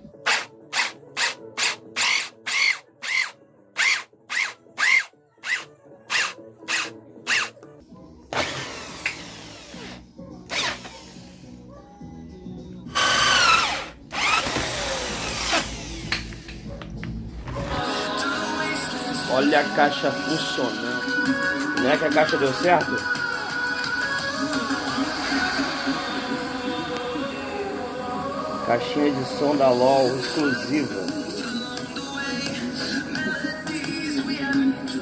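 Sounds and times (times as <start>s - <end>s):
electric drill motor: 0.2s - 7.5s, 8.3s - 11.6s, 12.9s - 16.5s.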